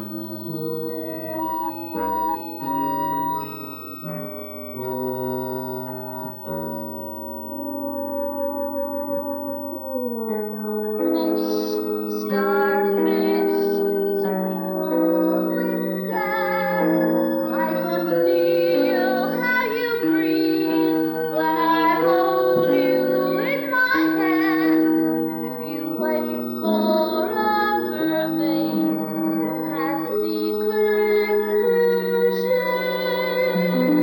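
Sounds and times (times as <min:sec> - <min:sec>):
instrumental accompaniment: 0:00.0 - 0:34.0
woman singing a slow ballad: 0:11.0 - 0:13.9, 0:14.9 - 0:34.0.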